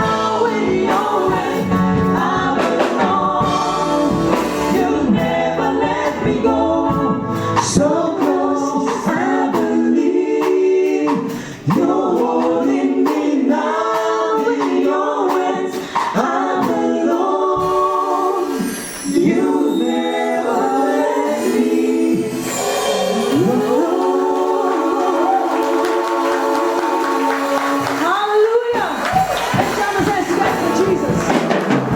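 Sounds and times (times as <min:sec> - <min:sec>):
choir singing gospel song: 0:00.0 - 0:31.9
low accompaniment: 0:00.7 - 0:09.8.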